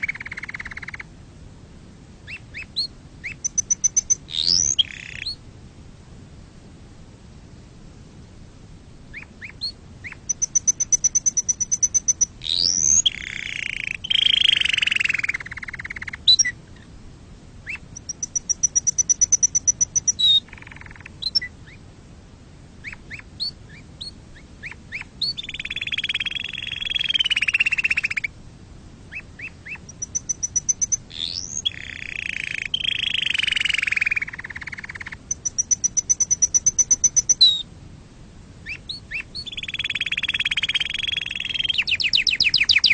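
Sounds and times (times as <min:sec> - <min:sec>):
canary singing: 0:00.0 - 0:01.1, 0:02.2 - 0:05.4, 0:09.1 - 0:16.6, 0:17.6 - 0:21.8, 0:22.8 - 0:28.3, 0:29.1 - 0:37.7, 0:38.6 - 0:42.9.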